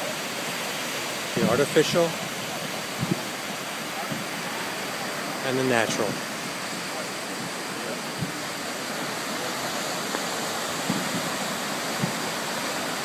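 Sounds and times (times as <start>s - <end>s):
steady rushing noise: 0.0s - 13.0s
distant fireworks thumps: 3.0s - 3.3s, 10.1s - 12.4s.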